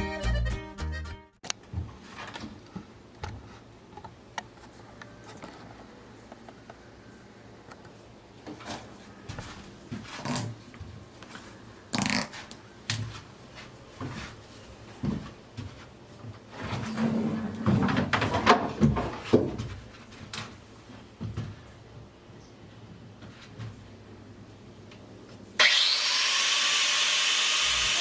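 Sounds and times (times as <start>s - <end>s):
objects knocking and scraping: 16.4s - 19.8s.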